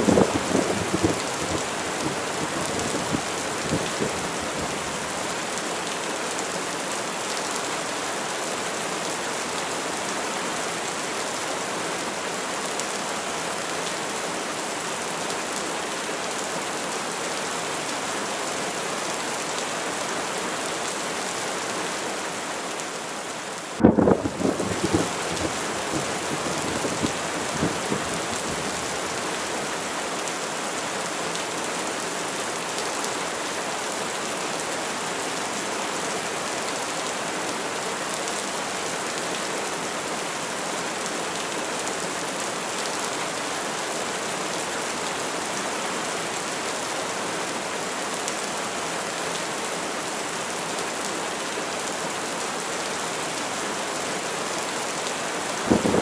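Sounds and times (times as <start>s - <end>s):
louder rain hits: 0.0s - 6.6s, 23.3s - 30.2s, 55.1s - 56.0s
steady rain hiss: 0.0s - 56.0s.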